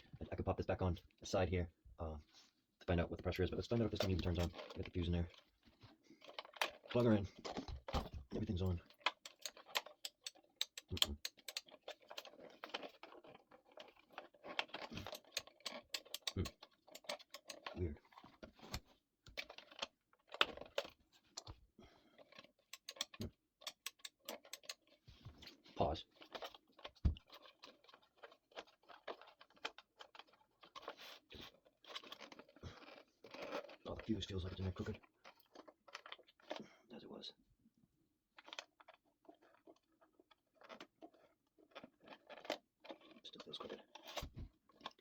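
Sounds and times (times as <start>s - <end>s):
hands clicking and scraping a fuse: 3.6s - 21.6s, 22.2s - 35.1s
clicks and taps of handling: 6.6s - 11.8s, 14.8s - 17.8s, 22.7s - 24.9s.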